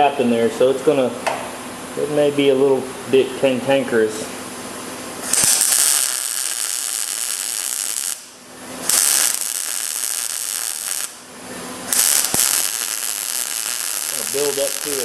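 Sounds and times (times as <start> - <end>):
welding arc crackling and hissing: 5.2 - 15.0.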